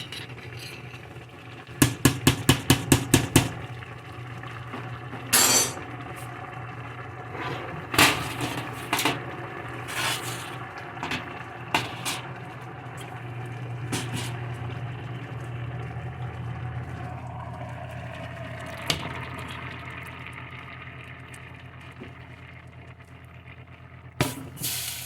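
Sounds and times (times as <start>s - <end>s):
chicken sizzling in frying pan: 24.2s - 25.0s.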